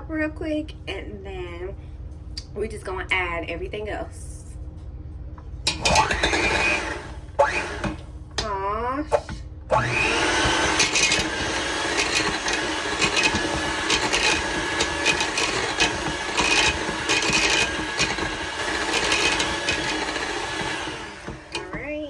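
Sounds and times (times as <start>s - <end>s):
mixer clicks: 5.6s - 8.5s, 9.1s - 22.0s
electric mixer motor whine: 5.7s - 8.1s, 9.7s - 22.0s.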